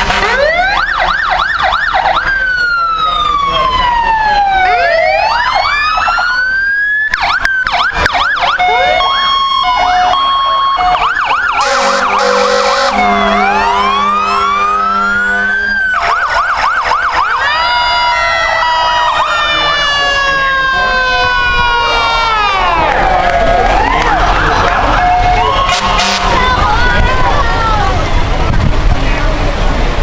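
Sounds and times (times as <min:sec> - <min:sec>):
low horn blast: 0:00.0 - 0:00.6, 0:11.6 - 0:16.0, 0:24.5 - 0:26.6
fire truck sirens wailing: 0:00.0 - 0:30.0.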